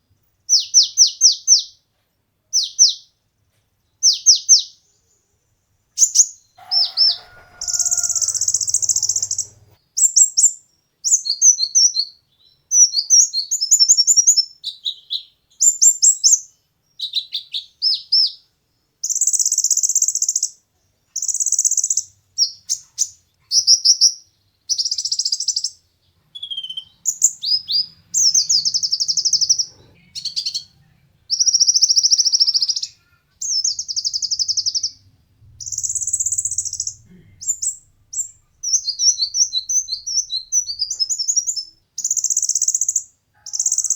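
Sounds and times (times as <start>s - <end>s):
bird singing high trills: 6.0s - 10.5s, 26.4s - 30.7s, 35.6s - 43.9s.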